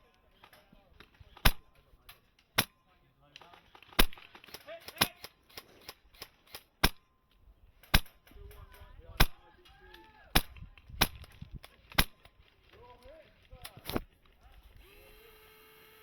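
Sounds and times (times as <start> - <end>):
airsoft rifle shots: 1.3 - 1.8, 3.4 - 7.1, 7.8 - 8.3, 9.2 - 9.5, 10.3 - 12.3.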